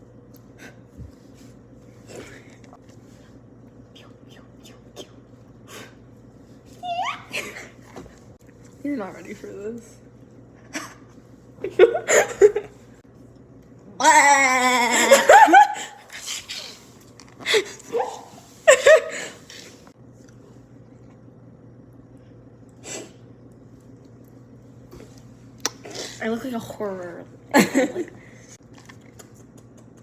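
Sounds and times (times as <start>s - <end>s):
person making wavering vocal noise: 13.9s - 15.3s
person laughing: 14.8s - 16.2s, 17.5s - 19.4s.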